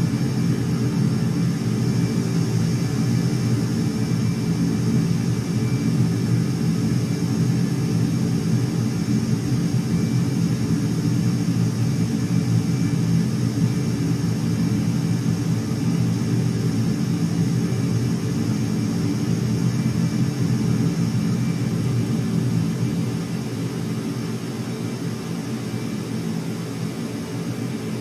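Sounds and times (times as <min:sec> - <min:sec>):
aircraft engines rumbling: 0:00.0 - 0:28.0
faint high whine: 0:00.0 - 0:28.0.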